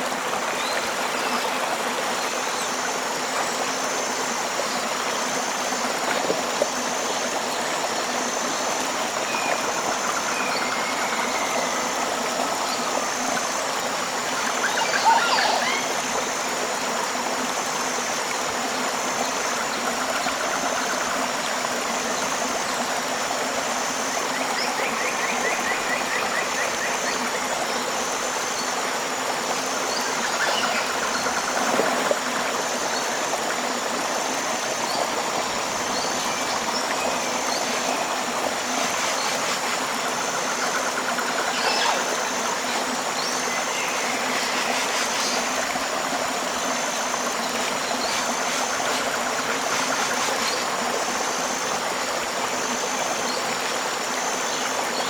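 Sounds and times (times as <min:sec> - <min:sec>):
river water flowing: 0:00.0 - 0:55.0
insect pulsing chirp: 0:24.0 - 0:51.9.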